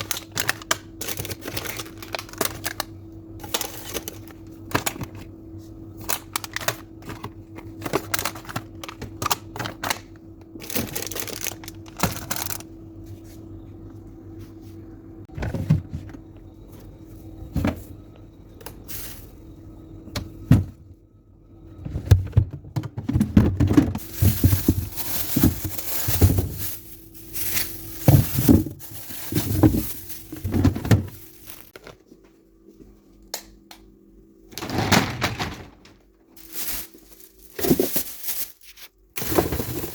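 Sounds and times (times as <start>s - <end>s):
plastic crinkling: 0.0s - 4.4s, 10.6s - 12.6s, 24.0s - 31.8s, 36.4s - 39.9s
food packages clicking and knocking: 0.0s - 5.3s, 6.0s - 12.7s, 21.9s - 32.0s, 34.5s - 39.9s
steady low hum: 0.0s - 34.6s.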